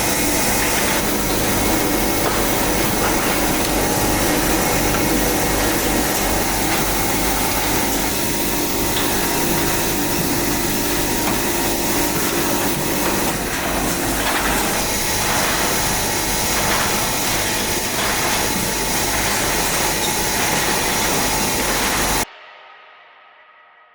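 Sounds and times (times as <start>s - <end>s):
machine whirring hiss: 0.0s - 22.3s.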